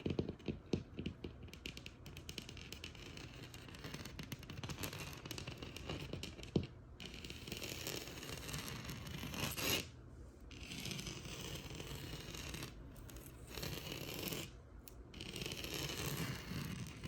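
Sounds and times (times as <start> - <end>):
scratching on textured wall: 0.0 - 17.0.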